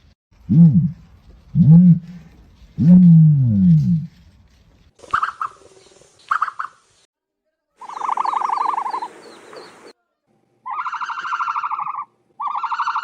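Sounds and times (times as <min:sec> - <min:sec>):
buzzy pulsed bird calls: 0:07.8 - 0:09.9.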